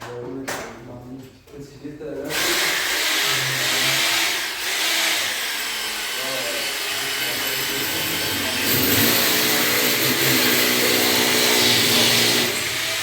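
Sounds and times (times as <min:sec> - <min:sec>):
loud machine motor running: 0:02.3 - 0:13.0.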